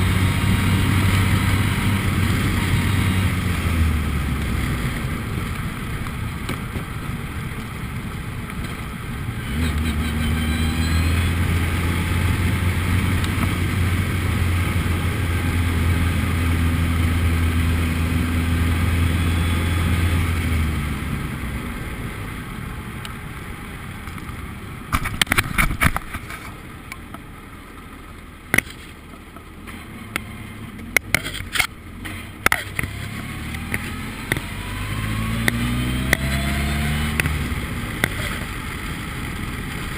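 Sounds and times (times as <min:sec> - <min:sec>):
race car engine revving: 0:09.4 - 0:21.0, 0:29.9 - 0:38.7
sharp clicks and knocks: 0:28.5 - 0:34.5.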